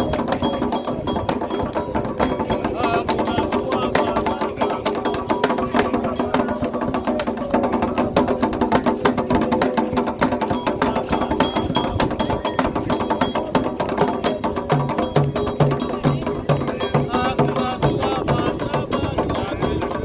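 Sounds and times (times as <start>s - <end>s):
drumming rhythm: 0.0s - 20.0s.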